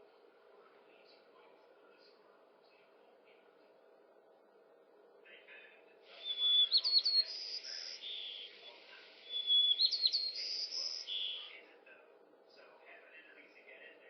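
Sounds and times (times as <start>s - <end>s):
bird singing: 6.2s - 11.6s.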